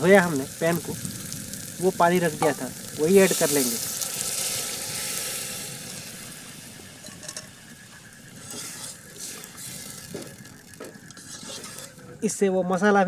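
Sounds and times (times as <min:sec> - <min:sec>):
onion sizzling in a pan: 0:00.0 - 0:13.0.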